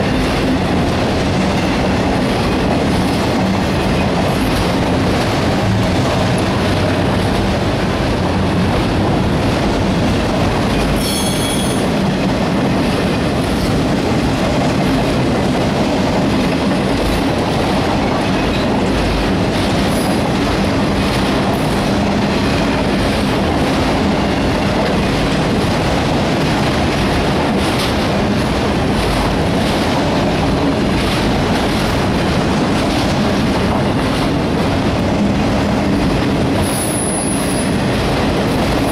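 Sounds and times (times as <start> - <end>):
freight train wheels rumbling: 0.0 - 38.9
high wheel squeal: 11.0 - 11.9.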